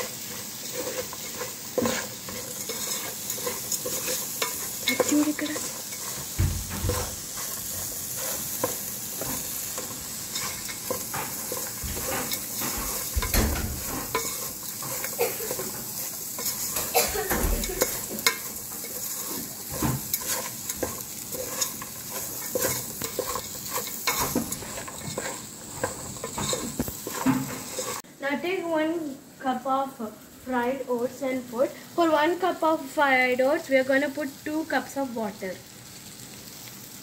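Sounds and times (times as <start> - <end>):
wooden spatula scraping pot: 0.0 - 28.0
vegetables sizzling in hot oil: 0.0 - 37.0.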